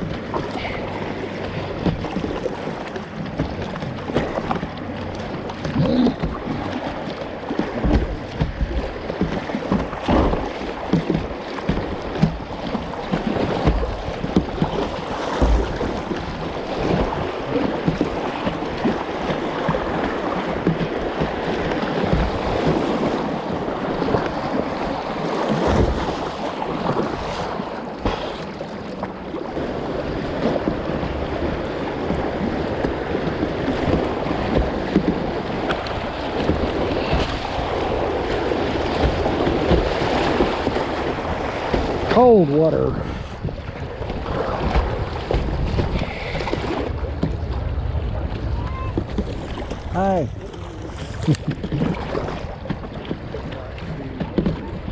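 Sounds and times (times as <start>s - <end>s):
river water splashing and rushing: 0.0s - 54.9s
wind buffeting microphone: 29.6s - 54.9s.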